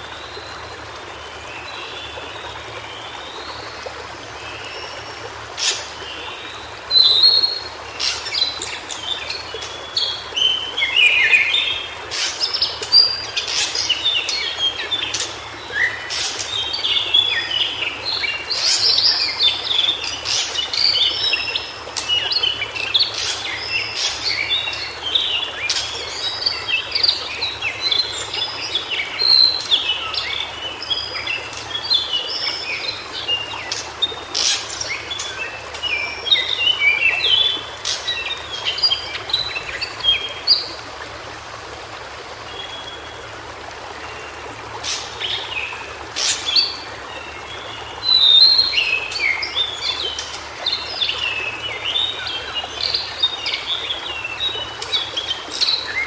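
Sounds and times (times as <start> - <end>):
background hiss: 6.9 - 38.9.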